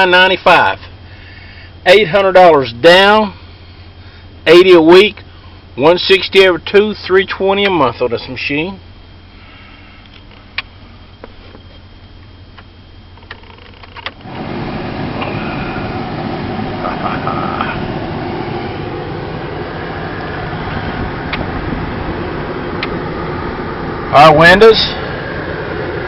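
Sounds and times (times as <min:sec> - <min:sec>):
engine low hum: 0:00.0 - 0:26.0
loud steady rushing noise: 0:14.2 - 0:26.0.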